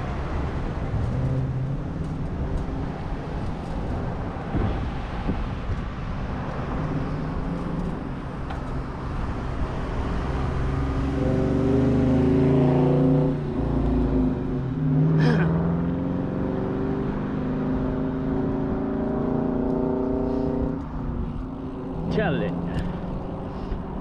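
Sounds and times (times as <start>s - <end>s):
wind buffeting microphone: 0.0s - 11.2s
vehicle engine: 0.0s - 24.0s.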